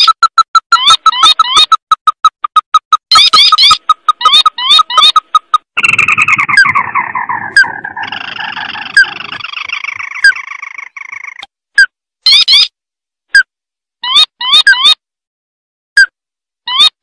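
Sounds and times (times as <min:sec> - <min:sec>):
bird calls trilling: 0:00.0 - 0:11.5, 0:12.3 - 0:12.7
sharp bird chirps: 0:00.0 - 0:12.7.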